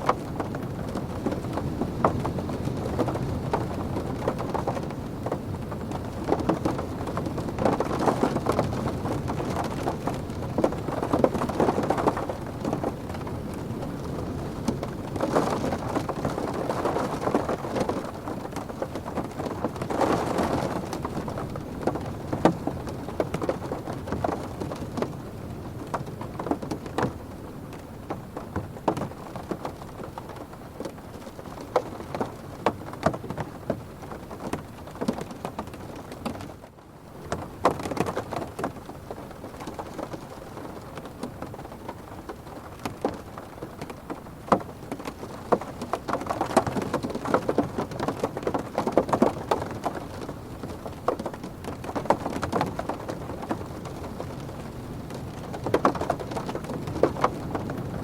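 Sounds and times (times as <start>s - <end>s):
rain pattering on car roof: 0.0s - 58.0s
wind: 0.0s - 58.0s.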